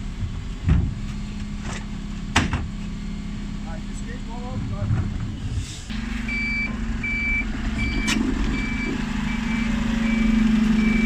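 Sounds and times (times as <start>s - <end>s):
diesel engine running: 0.0s - 11.0s
reversing alarm beeping: 6.2s - 11.0s.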